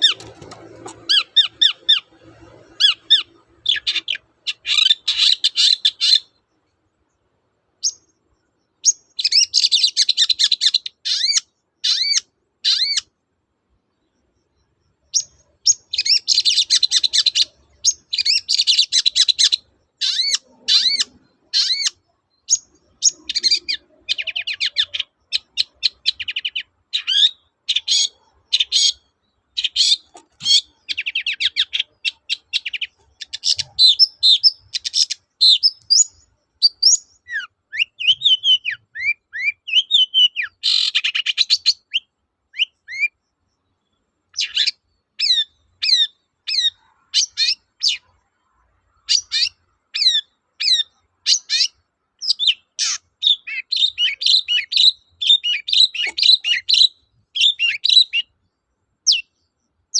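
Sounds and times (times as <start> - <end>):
shrike chattering song: 49.2 - 58.3.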